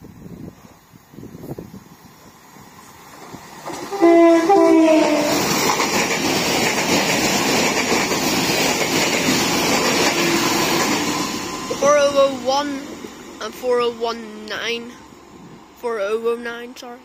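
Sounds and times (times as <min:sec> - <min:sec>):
train passing with loud rumble: 0:00.0 - 0:17.0
two-tone train horn: 0:03.9 - 0:05.5, 0:10.1 - 0:10.6.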